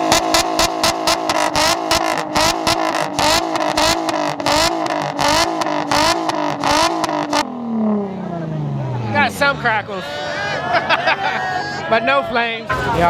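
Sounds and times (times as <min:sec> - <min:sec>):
exhaust pops and crackles: 0:00.0 - 0:07.6
car engine on launch limiter: 0:00.0 - 0:10.0.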